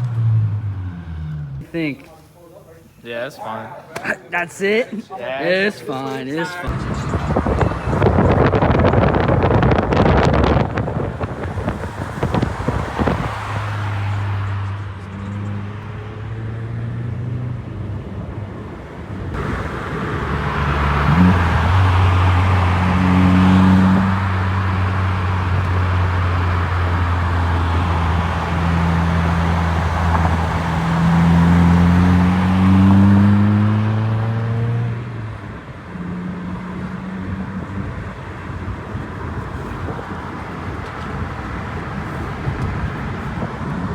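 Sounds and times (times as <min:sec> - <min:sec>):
car exhaust note: 0:19.4 - 0:35.0.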